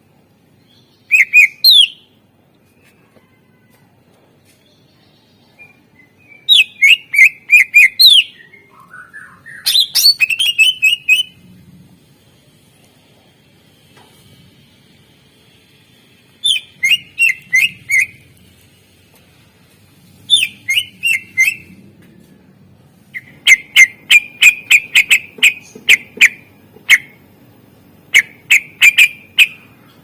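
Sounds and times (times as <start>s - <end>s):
bird singing sharp whistled notes: 1.0s - 2.1s, 16.4s - 18.2s, 20.3s - 21.7s.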